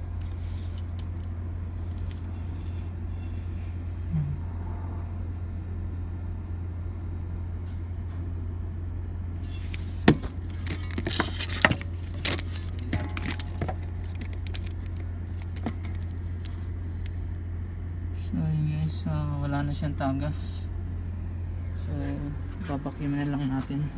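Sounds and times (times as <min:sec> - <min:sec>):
metal tools clicking and rattling: 0:00.0 - 0:03.7, 0:09.4 - 0:17.1.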